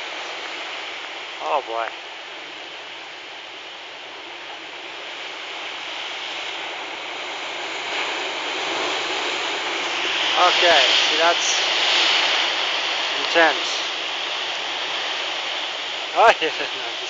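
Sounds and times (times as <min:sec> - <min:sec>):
waves breaking on rocks: 0:04.2 - 0:17.0.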